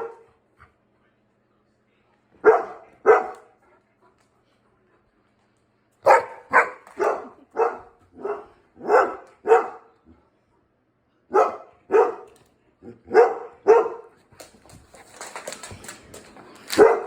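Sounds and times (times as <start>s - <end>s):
dog barking: 0.0s - 0.3s, 2.4s - 3.6s, 6.0s - 10.0s, 11.3s - 14.2s, 16.8s - 17.0s.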